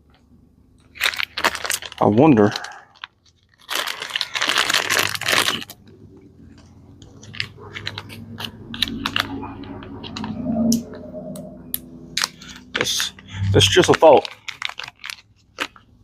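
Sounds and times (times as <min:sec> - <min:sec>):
low steady hum: 0:00.0 - 0:16.0
small parts clicking and clattering: 0:00.8 - 0:09.4, 0:13.8 - 0:15.9.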